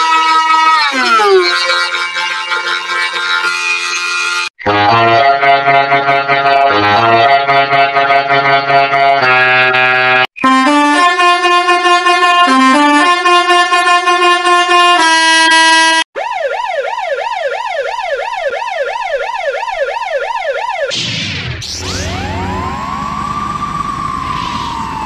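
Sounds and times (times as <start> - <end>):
ambulance siren yelping: 0.0 - 2.7, 12.1 - 21.0, 21.7 - 25.0
chiptune melody: 0.7 - 16.0, 21.6 - 24.3
electronic whoosh with rising tones: 21.6 - 25.0.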